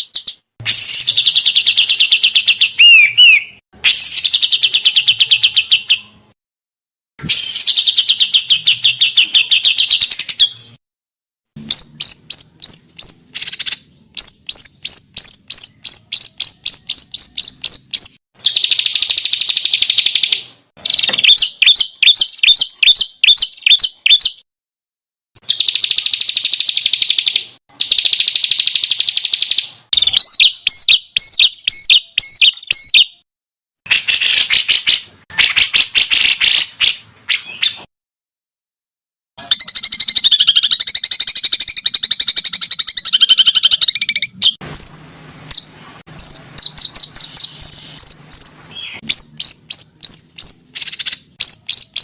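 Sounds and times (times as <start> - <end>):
songbird trills and chirps: 11.6 - 24.4, 25.5 - 33.2, 46.2 - 52.0.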